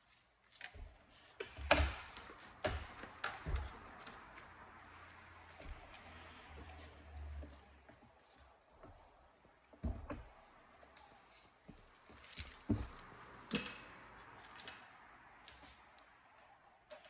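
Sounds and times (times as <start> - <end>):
light jangle: 5.9 - 9.8, 10.4 - 13.0.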